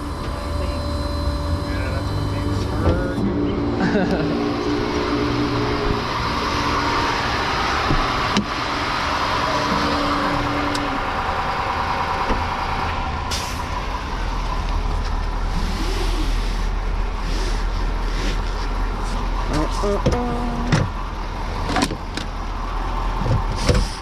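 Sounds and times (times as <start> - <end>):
deep low rumble: 0.0 - 21.6
road noise: 0.0 - 24.0
tow truck engine running: 0.0 - 24.0.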